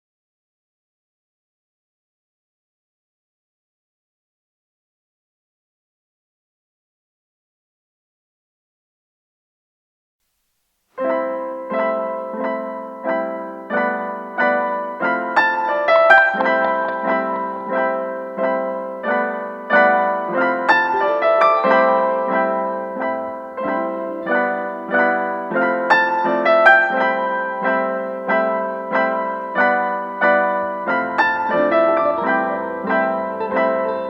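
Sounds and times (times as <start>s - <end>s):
piano melody: 11.0s - 34.0s
low bass piano notes: 12.0s - 34.0s.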